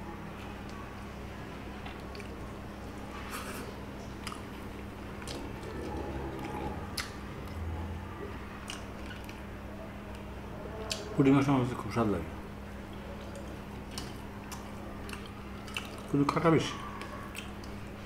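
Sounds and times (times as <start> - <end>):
faint steady hum: 0.0 - 18.0
wet chewing of food: 1.8 - 2.5, 3.2 - 11.1, 12.8 - 18.0.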